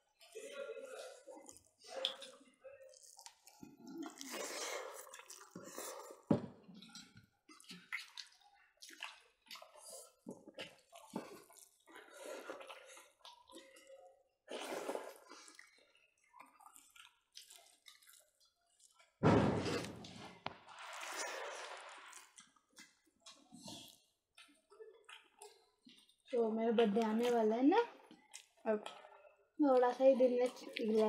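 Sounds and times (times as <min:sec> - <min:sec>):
wet chewing and lip smacks: 0:00.2 - 0:06.0, 0:06.8 - 0:14.1, 0:15.0 - 0:19.2, 0:21.8 - 0:27.4, 0:28.0 - 0:31.0.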